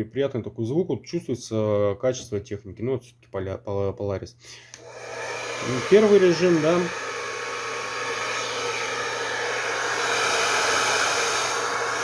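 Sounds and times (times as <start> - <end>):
hair dryer air rush: 4.8 - 12.0.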